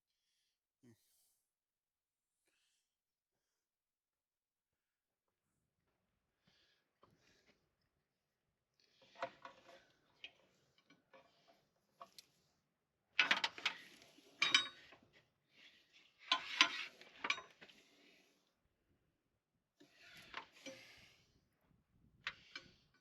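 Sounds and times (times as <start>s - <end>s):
metal tools clinking and clattering: 14.4s - 14.9s.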